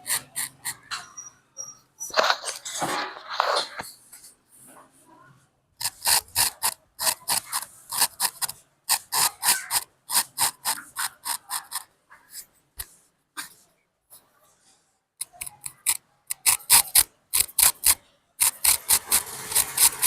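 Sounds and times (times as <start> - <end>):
straight razor scraping scalp: 0.0 - 1.1, 5.8 - 11.9, 15.2 - 20.0.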